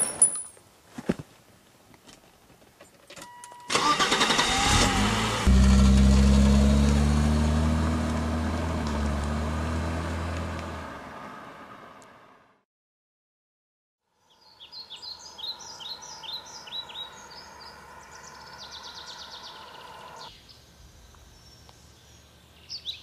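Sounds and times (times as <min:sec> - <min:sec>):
car starter cranking: 0:03.7 - 0:06.2
car engine running: 0:04.4 - 0:10.9.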